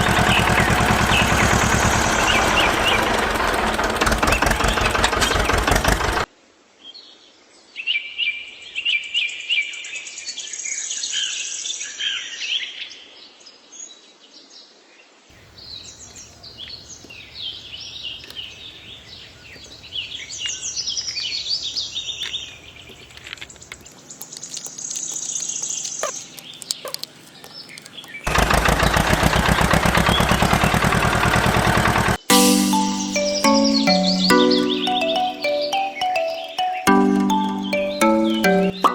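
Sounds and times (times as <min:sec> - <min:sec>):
loud steady noise: 0:00.0 - 0:06.3
small birds chirping: 0:00.0 - 0:06.3, 0:15.3 - 0:30.8, 0:32.2 - 0:38.9.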